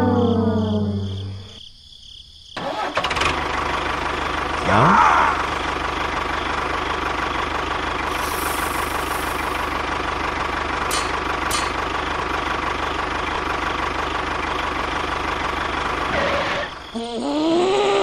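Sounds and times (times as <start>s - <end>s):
tractor engine idling: 2.6s - 16.9s.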